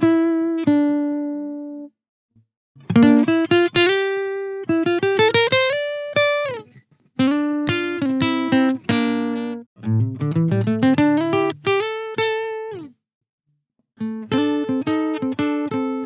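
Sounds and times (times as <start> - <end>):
plucked guitar notes: 2.8 - 6.6, 7.2 - 12.9, 14.0 - 16.0.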